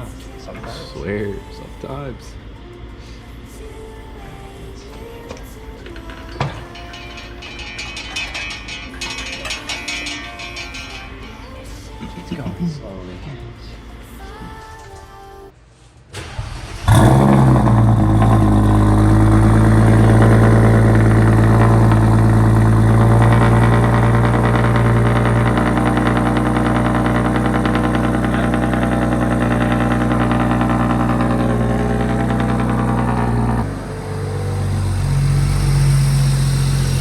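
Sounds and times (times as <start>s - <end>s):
car engine starting: 16.1s - 37.0s.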